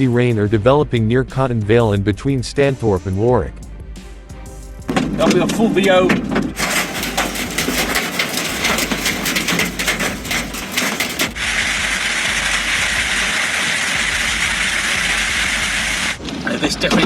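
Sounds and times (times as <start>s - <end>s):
hail clattering on vehicle: 4.9s - 17.0s
roar of hail and heavy rain: 6.4s - 17.0s.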